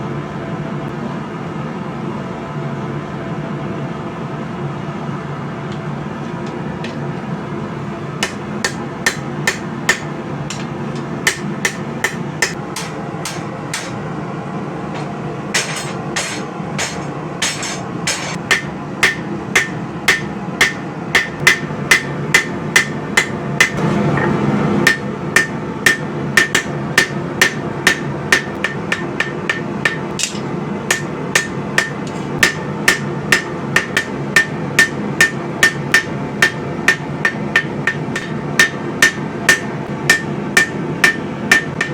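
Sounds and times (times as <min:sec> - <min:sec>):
hammer striking steel on anvil: 0:08.2 - 0:14.0, 0:15.0 - 0:41.9.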